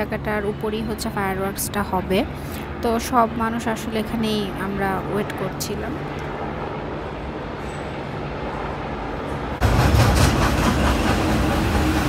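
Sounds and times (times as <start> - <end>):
steady background noise: 0.0 - 12.0
train passing with rumble: 5.2 - 12.0.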